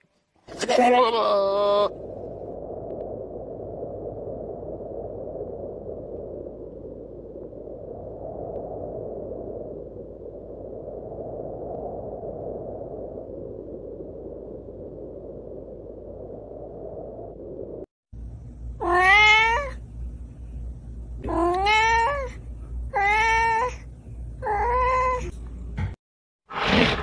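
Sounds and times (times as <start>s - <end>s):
low rushing noise: 2.0s - 18.8s.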